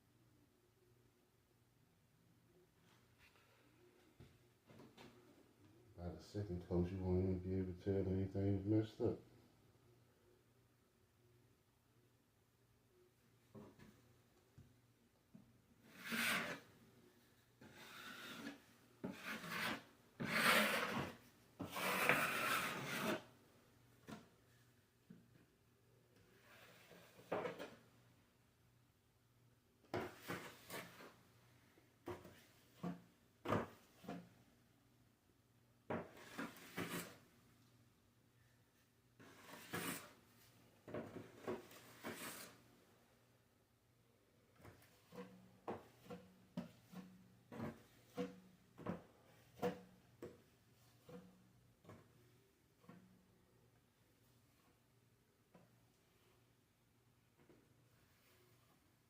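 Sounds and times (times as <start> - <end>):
drywall knife scraping wall: 15.8 - 16.8, 17.6 - 23.3, 29.9 - 31.2, 35.9 - 37.3, 39.2 - 40.2, 41.2 - 42.6.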